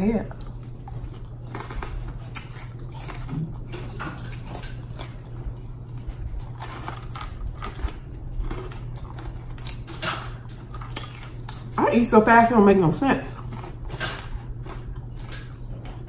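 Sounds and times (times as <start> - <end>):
chewing and wet mouth noises: 0.0 - 11.8, 13.2 - 16.0
overhead fan hum: 0.0 - 16.0.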